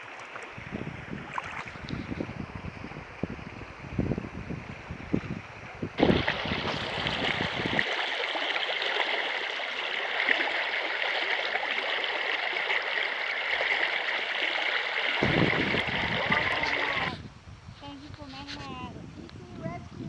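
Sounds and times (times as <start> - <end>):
rushing river water: 0.0 - 17.3
low knocks and bumps: 15.2 - 16.8.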